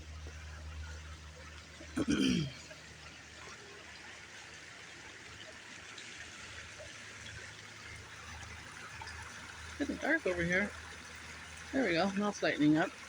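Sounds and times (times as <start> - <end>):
water trickling: 0.0 - 13.0.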